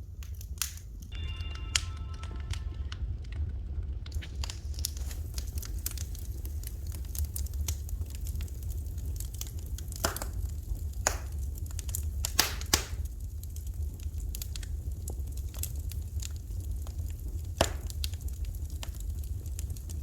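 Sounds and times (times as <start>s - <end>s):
steady low rumble: 0.0s - 12.4s
fire crackling and popping: 0.0s - 20.0s.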